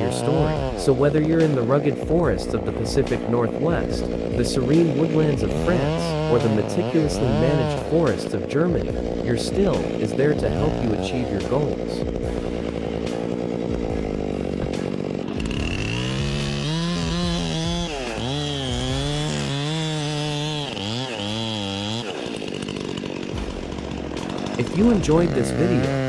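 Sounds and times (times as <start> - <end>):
chainsaw engine revving: 0.0 - 26.0.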